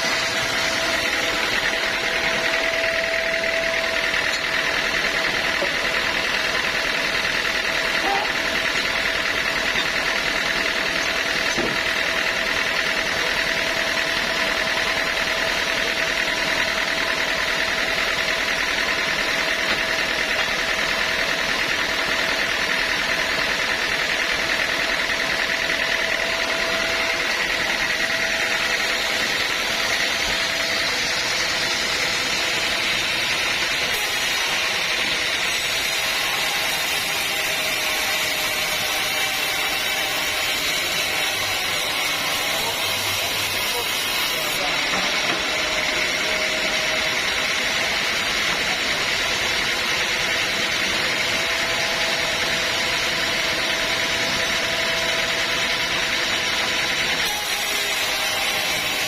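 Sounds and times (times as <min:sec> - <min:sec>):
sawmill machinery whining: 0:00.0 - 0:59.0.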